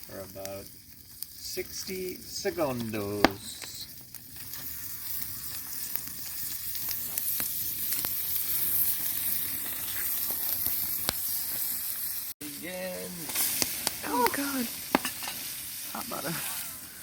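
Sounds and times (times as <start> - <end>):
butter sizzling in a pan: 0.0 - 17.0
sharp pops: 1.2 - 11.8, 13.2 - 15.5.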